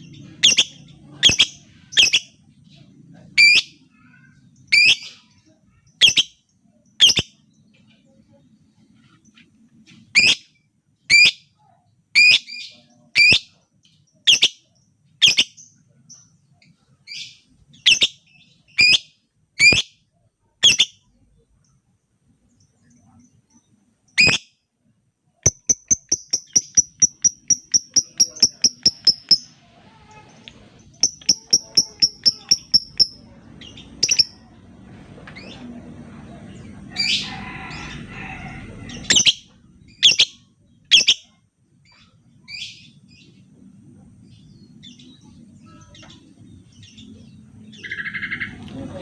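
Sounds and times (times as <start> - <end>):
lovebird chirping: 0.0 - 2.4, 3.4 - 7.5, 17.0 - 24.6, 25.4 - 34.6, 39.0 - 43.4.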